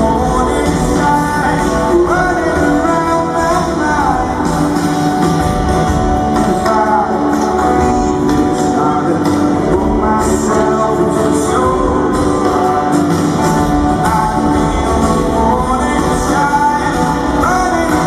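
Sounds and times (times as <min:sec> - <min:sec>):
live rock band playing: 0:00.0 - 0:18.0
man singing: 0:00.0 - 0:18.0.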